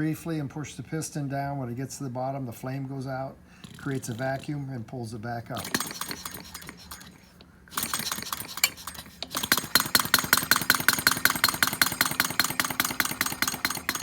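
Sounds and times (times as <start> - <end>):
small engine clicking: 5.5 - 14.0.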